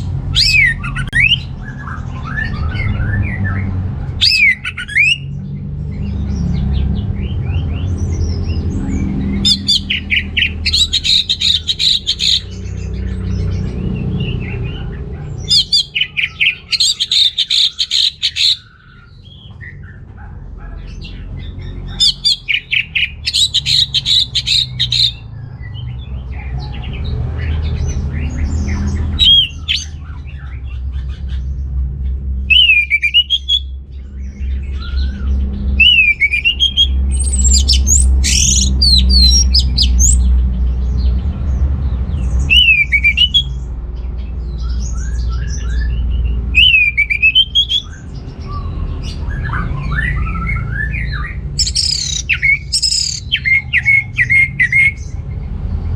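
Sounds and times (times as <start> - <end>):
thrush singing: 0.0 - 1.6, 4.2 - 5.3, 8.8 - 13.1, 14.0 - 18.7, 21.9 - 25.3, 29.1 - 30.0, 32.5 - 33.6, 35.7 - 40.3, 42.5 - 43.6, 46.6 - 48.0, 49.7 - 55.0
steady low rumble: 0.0 - 55.9.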